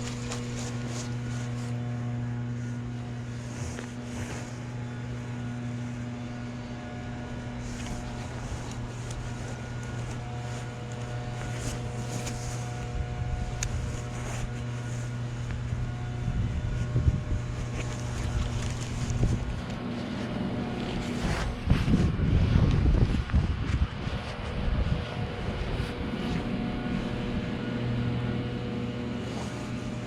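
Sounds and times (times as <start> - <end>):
low motor hum: 0.0 - 30.0
wind on the microphone: 12.6 - 19.8, 20.6 - 27.6.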